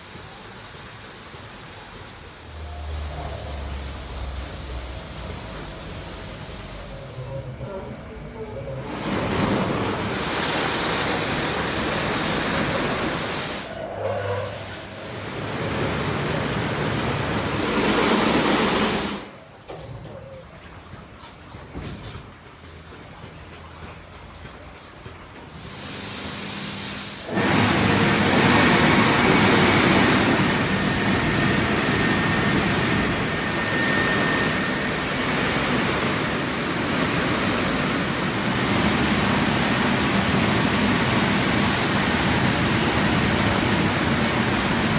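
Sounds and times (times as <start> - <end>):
hiss: 0.0 - 7.7, 8.6 - 19.3, 25.4 - 44.9
car wash spraying water and brushes: 0.0 - 7.8, 8.8 - 44.9
faint high whine: 13.7 - 24.8, 25.6 - 44.9.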